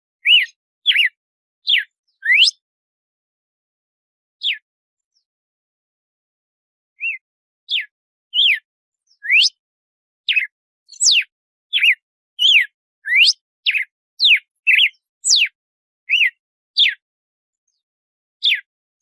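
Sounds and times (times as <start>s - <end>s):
bird whistling sharp notes: 0.2s - 2.6s, 7.0s - 8.6s, 9.2s - 9.6s, 10.3s - 17.0s, 18.4s - 18.6s.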